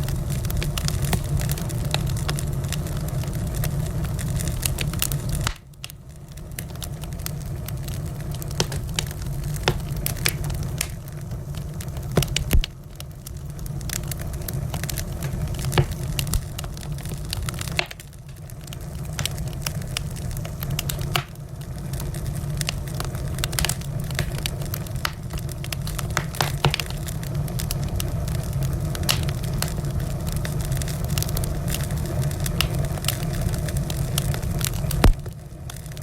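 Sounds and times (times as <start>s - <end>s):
wood fire crackling: 0.0s - 36.0s.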